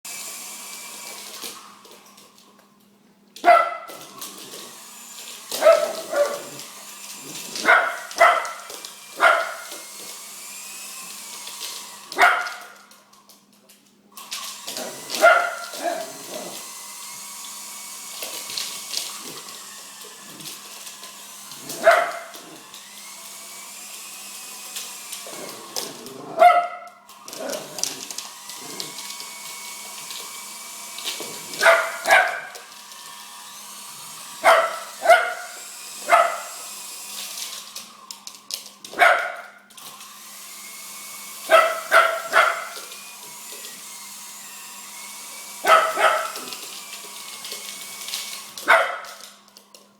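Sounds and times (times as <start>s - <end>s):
dog barking: 3.4s - 4.0s, 5.6s - 6.6s, 7.6s - 9.7s, 12.2s - 12.8s, 14.8s - 16.6s, 21.8s - 22.3s, 26.2s - 26.9s, 31.6s - 32.6s, 34.4s - 36.7s, 39.0s - 39.6s, 41.5s - 42.8s, 45.6s - 46.5s, 48.6s - 49.2s.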